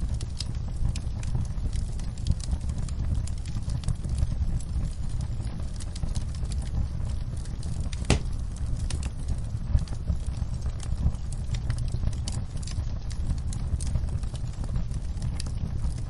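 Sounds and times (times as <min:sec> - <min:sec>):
low rumble of burning fire: 0:00.0 - 0:16.0
wood fire crackling and popping: 0:00.0 - 0:16.0.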